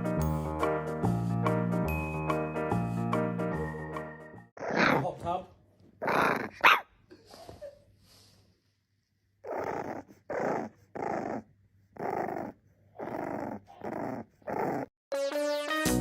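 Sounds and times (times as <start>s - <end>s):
music: 0.0s - 4.5s, 15.1s - 16.0s
dog growling: 4.6s - 5.2s, 6.0s - 6.8s, 9.4s - 14.9s.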